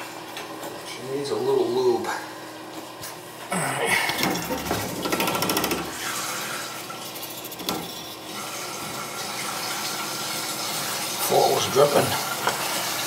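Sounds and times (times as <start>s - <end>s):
toilet tank refilling: 4.1s - 13.0s.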